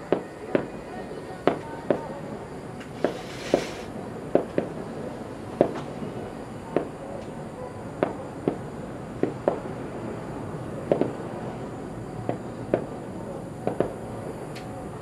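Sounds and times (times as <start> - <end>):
distant firework bangs: 2.8 - 4.9, 5.5 - 7.0, 7.9 - 10.0, 10.8 - 11.6, 12.2 - 14.2.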